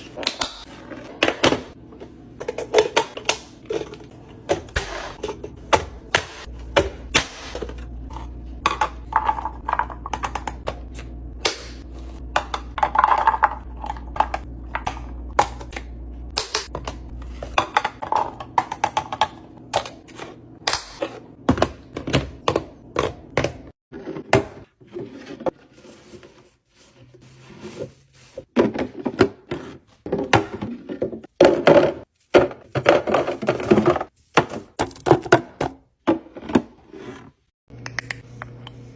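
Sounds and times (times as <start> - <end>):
items handled and set down: 0.0 - 11.2, 11.8 - 38.1
low hum: 1.8 - 20.6.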